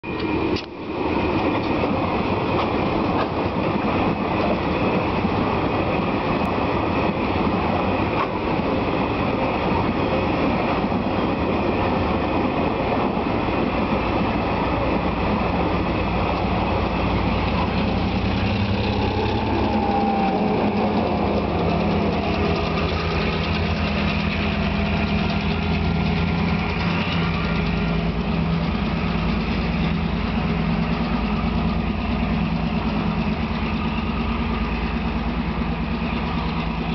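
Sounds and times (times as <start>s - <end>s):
diesel engine drone: 0.0s - 36.9s
wagon wheels clattering on rails: 15.6s - 34.0s.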